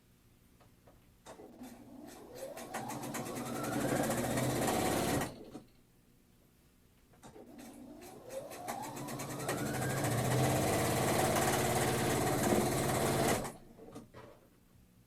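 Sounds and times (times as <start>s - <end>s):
sewing machine stitching: 1.3s - 5.6s, 7.2s - 13.6s.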